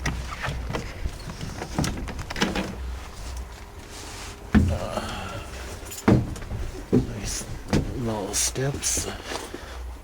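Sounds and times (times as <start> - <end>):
bus door clicks and knocks: 0.0 - 2.8, 4.5 - 5.1, 6.0 - 8.1
microphone handling rumble: 0.0 - 3.3.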